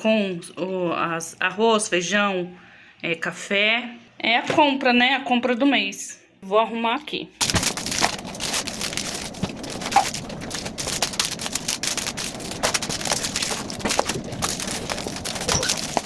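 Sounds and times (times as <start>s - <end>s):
packaging clicking and rustling: 7.4s - 16.0s.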